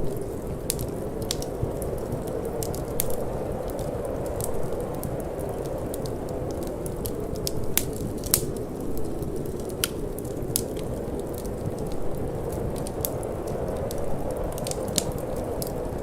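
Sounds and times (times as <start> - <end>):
low rush of wind: 0.0 - 16.0
wood fire crackling: 0.0 - 16.0.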